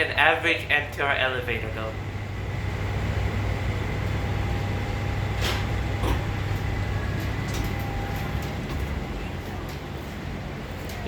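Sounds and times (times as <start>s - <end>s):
elevator hum with faint whine: 0.0s - 11.0s.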